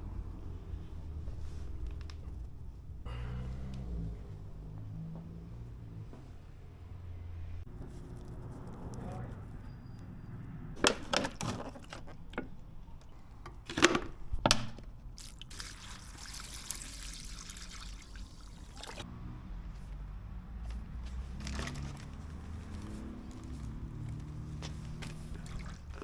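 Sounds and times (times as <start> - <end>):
liquid pouring: 15.2 - 19.0, 25.0 - 26.0.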